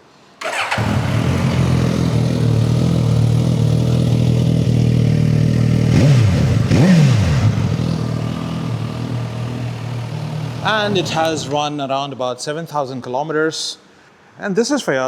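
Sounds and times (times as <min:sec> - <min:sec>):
motorcycle engine idling and revving: 0:00.4 - 0:11.7.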